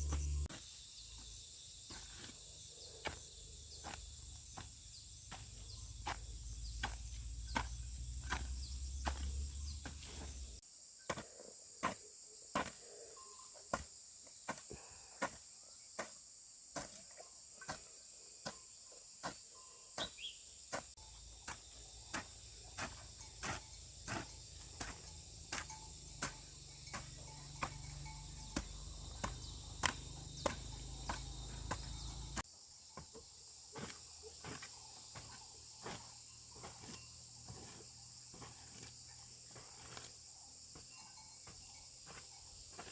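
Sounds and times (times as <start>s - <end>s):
sharp evenly spaced knocks: 2.9s - 12.8s, 19.2s - 38.9s, 40.7s - 42.9s
insects shrilling: 19.0s - 32.5s.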